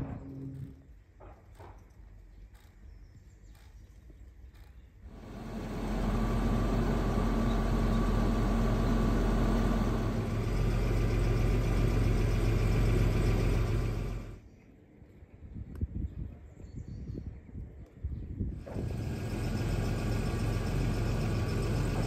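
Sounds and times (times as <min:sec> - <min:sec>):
car engine idling: 0:05.1 - 0:14.4, 0:18.8 - 0:22.0.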